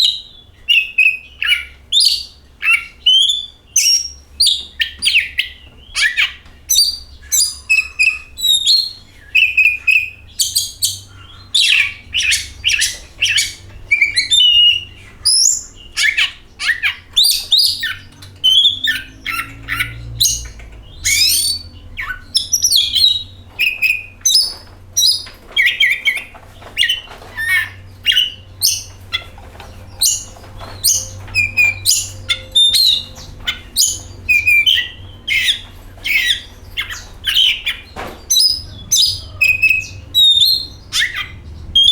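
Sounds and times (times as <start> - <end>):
bird singing: 0.0 - 41.9.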